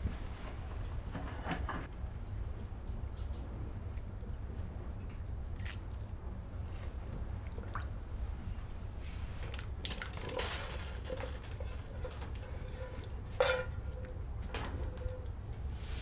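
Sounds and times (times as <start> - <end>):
metal cookware clinking: 10.0 - 15.3.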